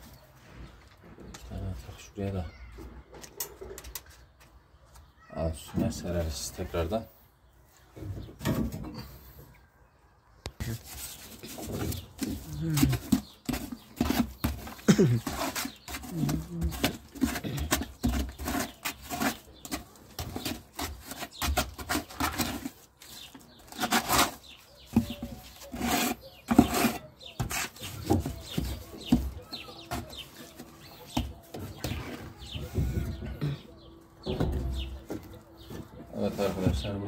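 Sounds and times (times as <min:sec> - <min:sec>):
mortar and gravel scraping: 0:10.6 - 0:31.3.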